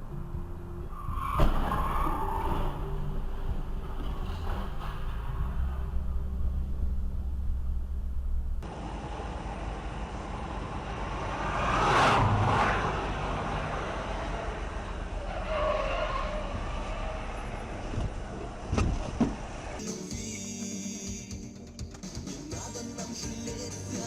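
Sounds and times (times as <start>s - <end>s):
road and engine noise from traffic: 0.0s - 19.9s
vehicle passing close by: 9.5s - 19.8s.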